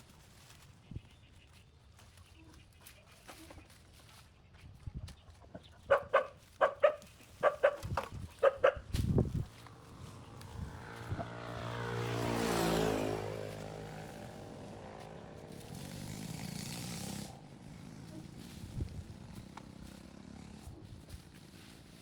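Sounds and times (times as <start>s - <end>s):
vehicle driving past: 9.5s - 22.0s.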